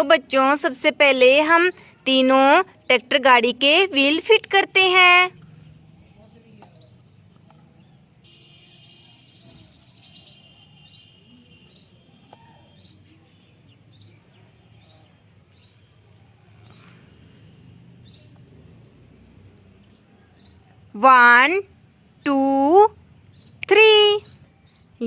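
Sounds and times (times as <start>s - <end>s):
bird chirping: 1.2s - 25.0s
bird trill: 8.2s - 13.0s, 23.3s - 25.0s.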